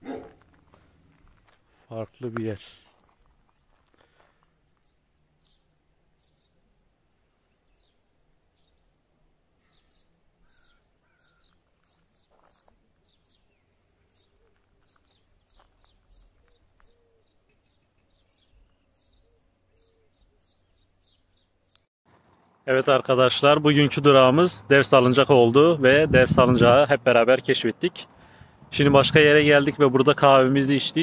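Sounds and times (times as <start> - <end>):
high bird chirps: 9.6 - 21.9.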